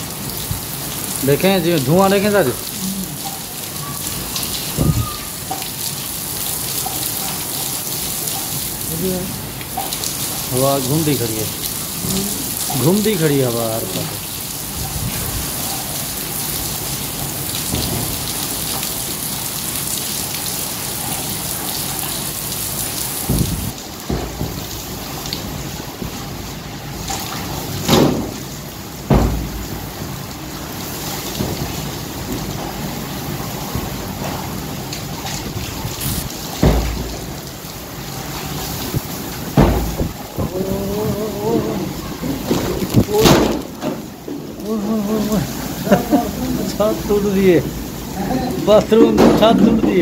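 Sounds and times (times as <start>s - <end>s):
heavy rain pouring: 0.0s - 50.0s
wind gusts buffeting microphone: 23.3s - 23.8s, 38.6s - 41.4s.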